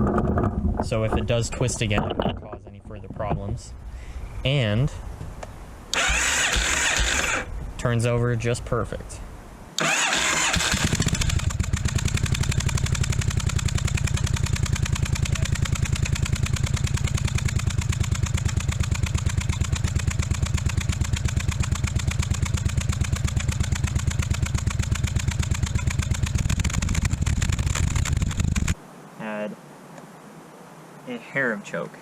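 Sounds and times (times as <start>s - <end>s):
engine cranking on starter: 5.9s - 7.6s, 9.8s - 28.8s.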